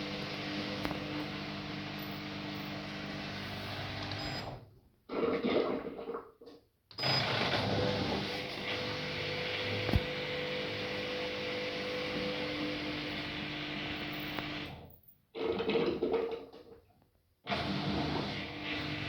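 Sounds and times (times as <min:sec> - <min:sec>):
washing machine whirring: 0:00.0 - 0:04.7, 0:07.0 - 0:15.8, 0:17.4 - 0:19.0.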